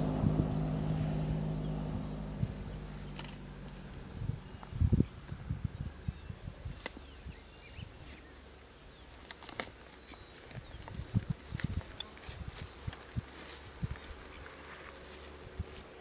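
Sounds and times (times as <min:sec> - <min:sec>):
whistled bird calls: 0:00.0 - 0:00.7, 0:02.7 - 0:03.4, 0:05.9 - 0:08.3, 0:10.1 - 0:11.0, 0:13.6 - 0:14.4
pulsing insect trill: 0:00.0 - 0:11.5.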